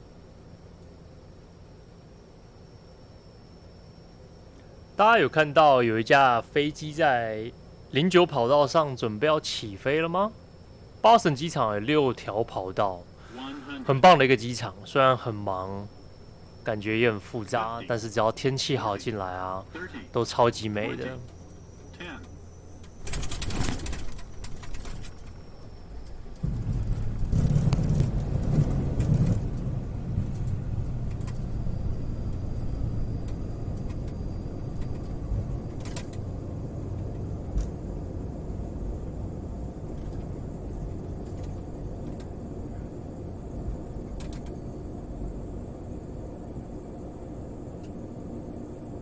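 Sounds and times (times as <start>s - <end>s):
airliner rolling out on runway: 20.0s - 49.0s.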